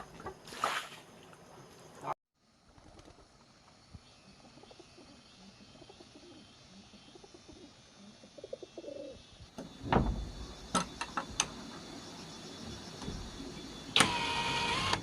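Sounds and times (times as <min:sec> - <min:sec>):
dove cooing: 0:04.5 - 0:09.3
loud thump: 0:09.8 - 0:10.6.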